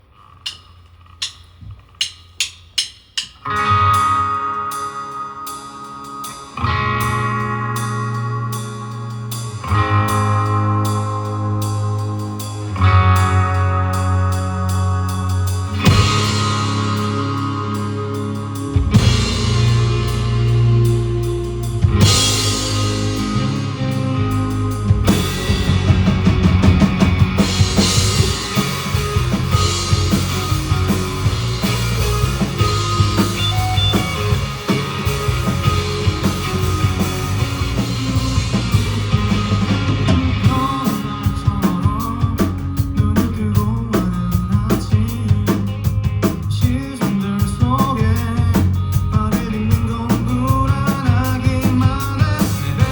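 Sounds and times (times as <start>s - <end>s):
drum kit beat: 0.5s - 13.4s, 14.7s - 52.9s
rock band playing live: 3.3s - 52.9s.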